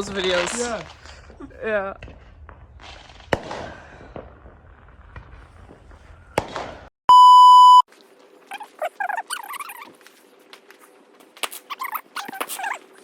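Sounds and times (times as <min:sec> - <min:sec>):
crackling hiss: 0:00.0 - 0:04.3
firework bangs: 0:00.0 - 0:06.9
loud electronic beep: 0:07.1 - 0:07.8.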